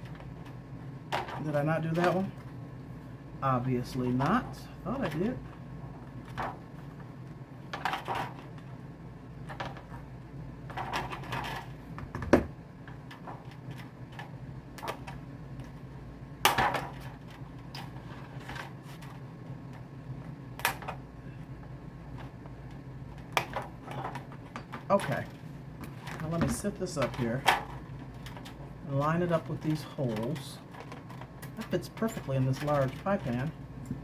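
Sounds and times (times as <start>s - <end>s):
low steady hum: 0.0s - 34.0s
handling clatter: 22.1s - 34.0s.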